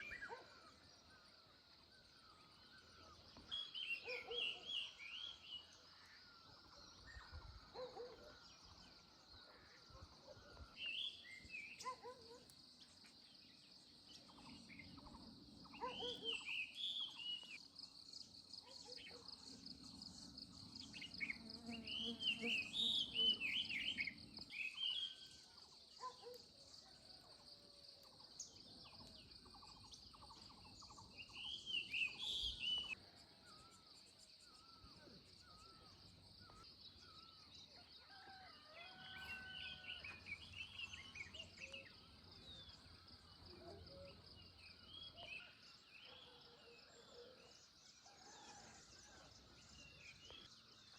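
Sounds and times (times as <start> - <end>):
bird chirps: 14.1 - 17.7, 28.4 - 37.6
bird calls: 14.2 - 17.6, 28.8 - 33.8.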